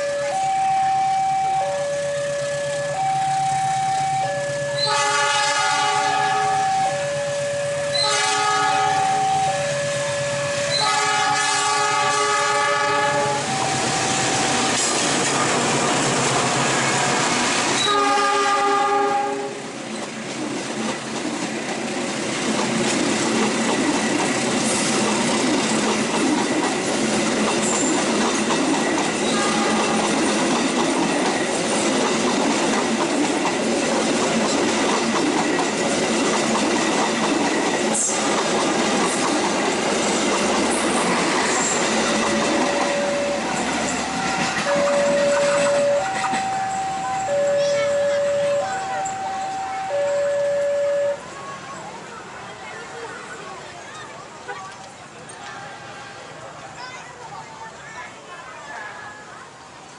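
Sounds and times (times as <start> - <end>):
train horn: 0.0 - 14.6, 17.8 - 19.7, 29.2 - 30.1
train rumbling past: 0.0 - 59.9
wheels clattering on rails: 2.0 - 55.9.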